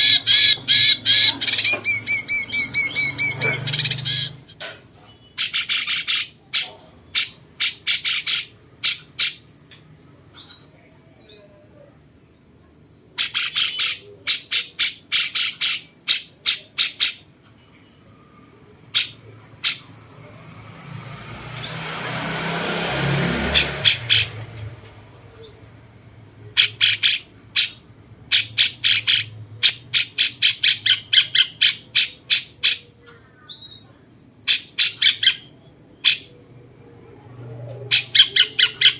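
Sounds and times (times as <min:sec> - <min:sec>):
bird calling sharp notes: 0:00.0 - 0:04.6.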